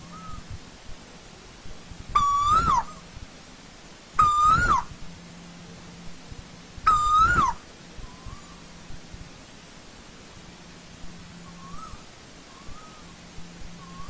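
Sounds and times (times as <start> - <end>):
koel calling: 2.2 - 3.0, 4.2 - 4.9, 6.8 - 8.6.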